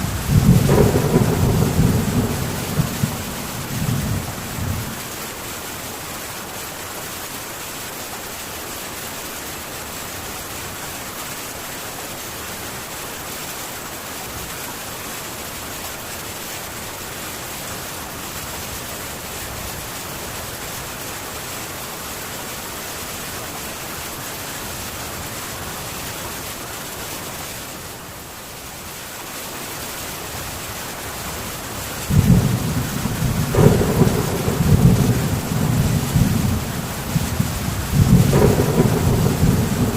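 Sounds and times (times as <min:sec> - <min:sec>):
thunder rumbling: 0:00.0 - 0:05.1, 0:32.1 - 0:39.9
rain on a tin roof: 0:00.0 - 0:39.9.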